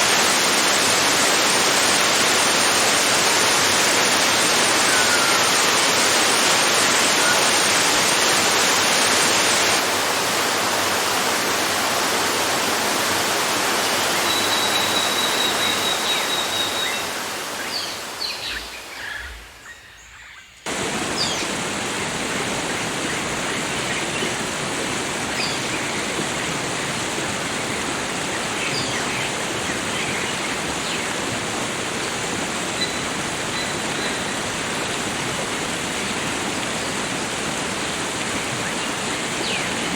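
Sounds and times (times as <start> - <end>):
water rushing over waterfall: 0.0 - 18.2, 20.7 - 39.9
faint bird chirps: 14.2 - 20.6.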